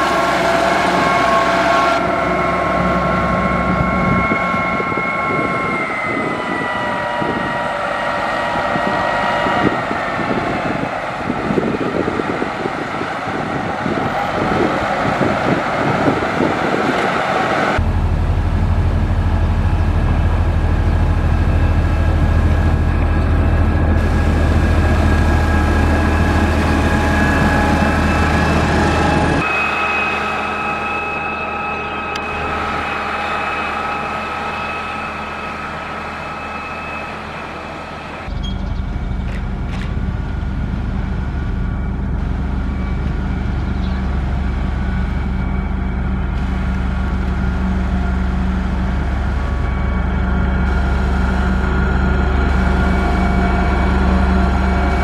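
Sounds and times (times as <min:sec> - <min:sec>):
heavy machinery diesel engines: 0:00.0 - 0:55.0.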